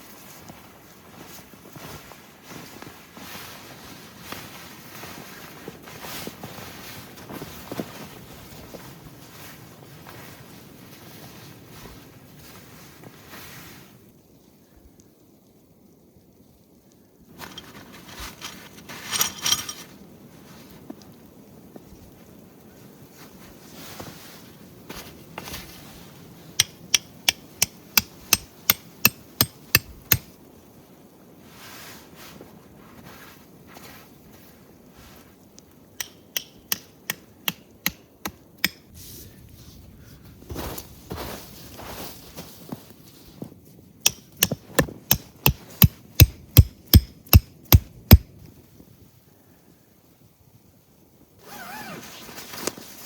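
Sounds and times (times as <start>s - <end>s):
hammer striking metal: 26.6s - 30.2s, 36.0s - 38.0s, 44.1s - 48.2s.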